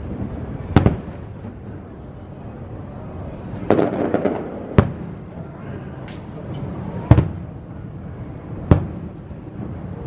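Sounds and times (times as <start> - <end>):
distant firework rumble: 0.0 - 10.0
rapid firework crackling: 3.6 - 5.3.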